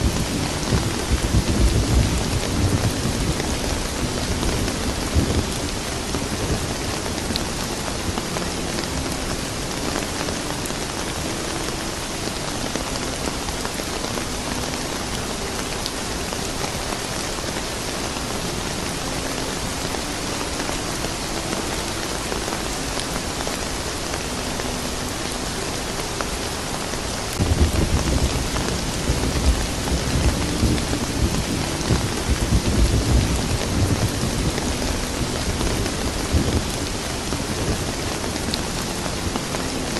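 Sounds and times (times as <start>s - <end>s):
thunder rumbling: 0.0s - 11.3s, 27.3s - 39.9s
steady rain hissing: 0.0s - 39.9s.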